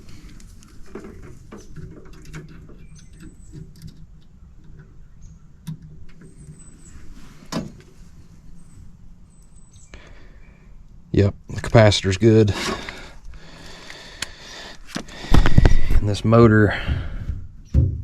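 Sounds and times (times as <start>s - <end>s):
sharp knocks: 17.3s - 18.0s.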